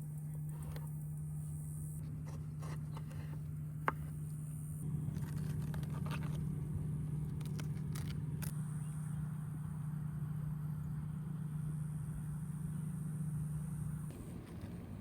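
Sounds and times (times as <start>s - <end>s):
low motor hum: 0.0s - 15.0s
handling clicks and scrapes: 2.0s - 4.4s, 5.1s - 6.6s, 7.2s - 8.6s.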